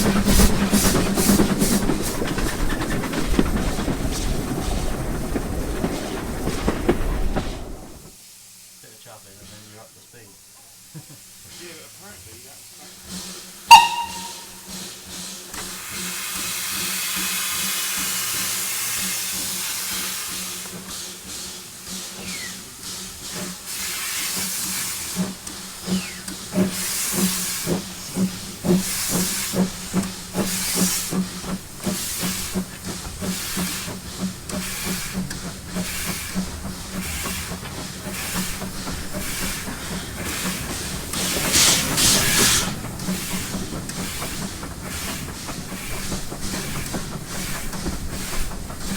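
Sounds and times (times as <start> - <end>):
steam hiss: 0.0 - 48.9
steam locomotive exhaust beats: 0.0 - 48.9.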